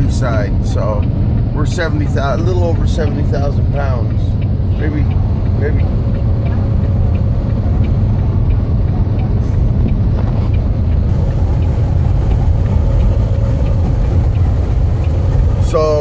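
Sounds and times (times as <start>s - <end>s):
truck engine and road drone: 0.0s - 16.0s
wind buffeting truck: 0.0s - 16.0s.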